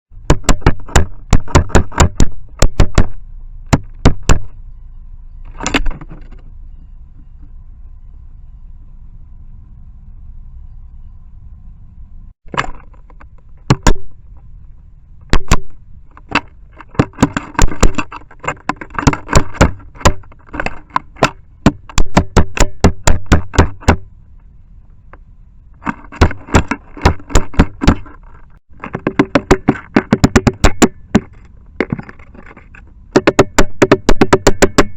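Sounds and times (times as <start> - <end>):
woodpecker knocking on plastic: 0.3 - 4.5, 15.3 - 24.0, 25.9 - 28.2, 28.8 - 32.2, 33.2 - 34.9.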